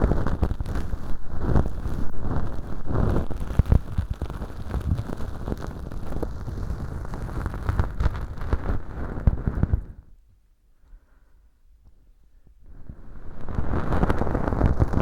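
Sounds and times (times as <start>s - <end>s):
ear pick scratching crackly rustle: 0.0s - 9.9s, 13.2s - 15.0s.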